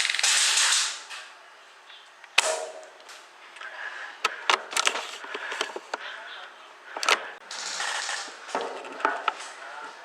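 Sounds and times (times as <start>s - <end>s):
rifle firing sharp crack: 2.4s - 2.9s.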